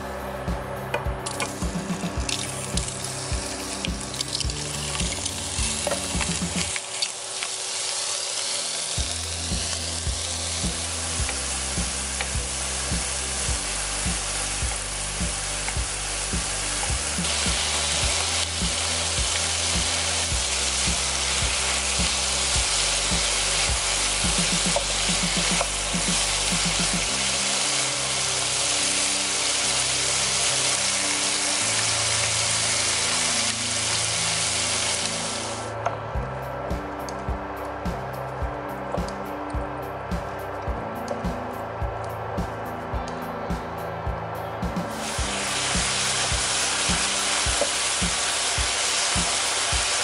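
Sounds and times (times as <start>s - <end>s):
background music with beat: 0.0s - 6.8s, 9.0s - 31.7s, 35.6s - 50.0s
shrimp sizzling in a pan: 2.3s - 35.6s, 45.0s - 50.0s.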